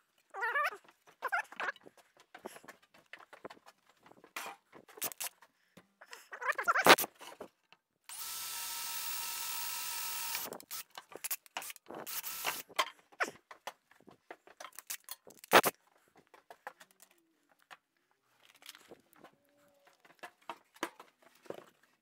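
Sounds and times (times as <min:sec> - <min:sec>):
power tool motor running: 0:08.1 - 0:10.9, 0:12.0 - 0:12.6
clicks and knocks of tools: 0:10.3 - 0:17.8.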